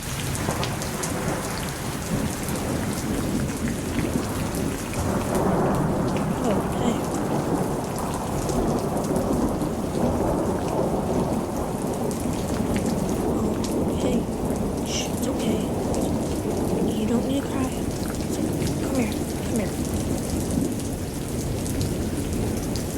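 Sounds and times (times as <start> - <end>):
heavy rain pattering: 0.0 - 22.9
low thunder rumble: 0.0 - 22.9.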